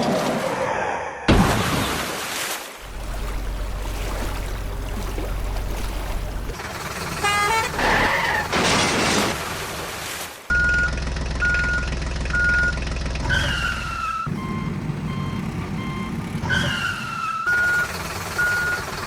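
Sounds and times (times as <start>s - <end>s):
low engine hum: 2.8s - 8.6s, 10.5s - 19.0s.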